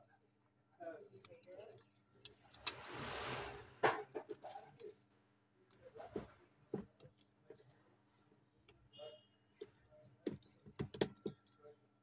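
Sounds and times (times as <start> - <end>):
small metal tools clicking: 10.3 - 11.6.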